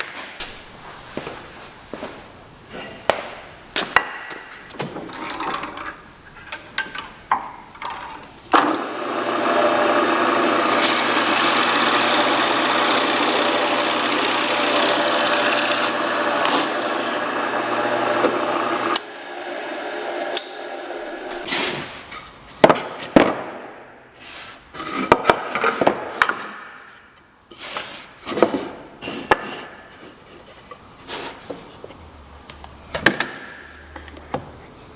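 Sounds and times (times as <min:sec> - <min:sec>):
power tool cutting wood: 0:08.5 - 0:21.5.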